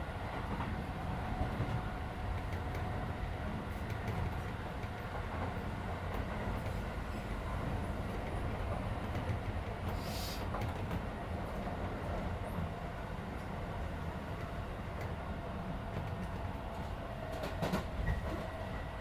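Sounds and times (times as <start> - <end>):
train wheels rumbling on rail: 0.0 - 19.0
brief hiss: 10.0 - 10.4.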